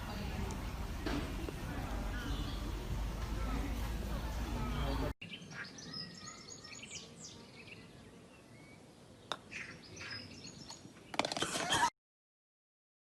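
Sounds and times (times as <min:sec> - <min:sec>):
small birds chirping: 0:01.3 - 0:03.8, 0:04.4 - 0:11.4.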